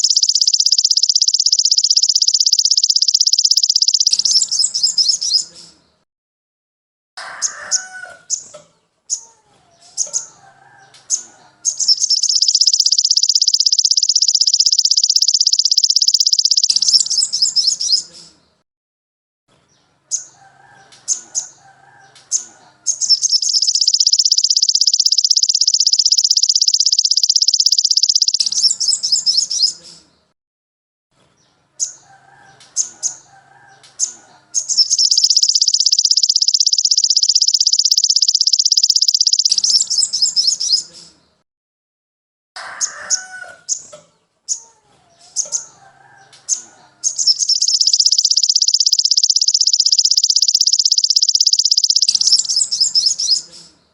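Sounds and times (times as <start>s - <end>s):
rapid high-pitched bird trill: 0.0s - 5.5s, 11.1s - 18.1s, 20.1s - 29.8s, 31.8s - 40.9s, 45.4s - 53.6s
songbird chirps: 0.0s - 6.0s, 7.3s - 18.6s, 19.5s - 30.4s, 31.2s - 41.4s, 42.8s - 53.9s.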